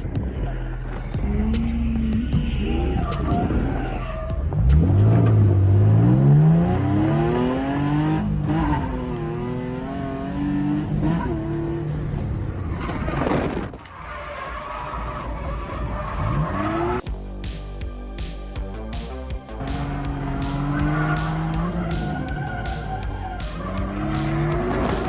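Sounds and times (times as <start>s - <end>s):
car engine revving hard: 1.2s - 12.4s, 19.6s - 25.0s.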